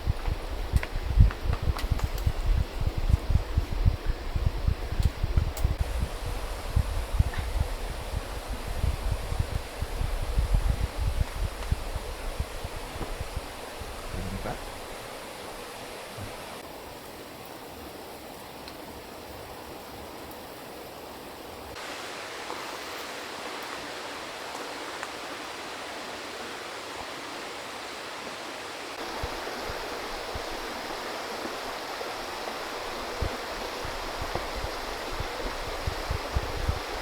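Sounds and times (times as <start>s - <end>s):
stream rushing over rocks: 21.8s - 37.0s.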